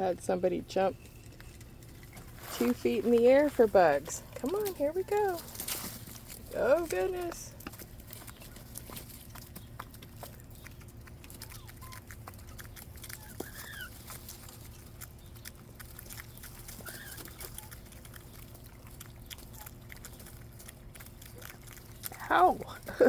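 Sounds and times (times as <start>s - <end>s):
quail pecking clicks: 4.4s - 22.4s
quail chirps: 9.2s - 20.3s.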